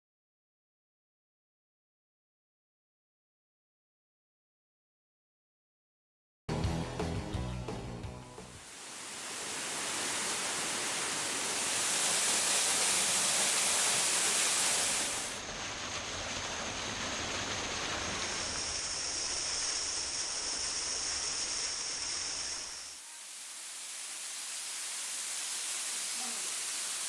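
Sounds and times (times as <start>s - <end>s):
rushing water: 8.6s - 27.0s.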